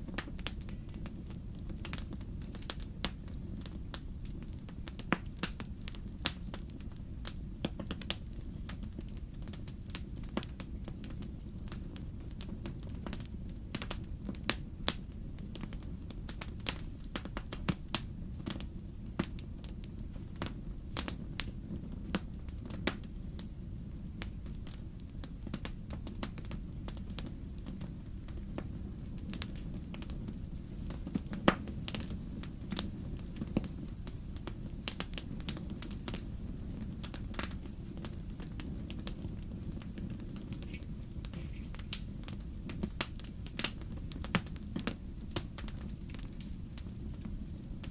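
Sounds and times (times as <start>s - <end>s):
fire pops: 0.0s - 47.9s
flames rumbling: 0.0s - 47.9s
wood fire crackling: 0.0s - 47.9s.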